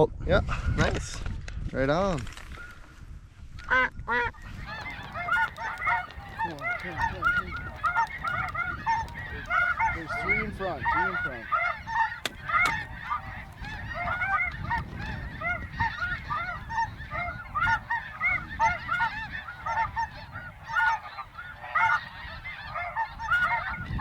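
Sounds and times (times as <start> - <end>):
geese honking: 3.7 - 24.0.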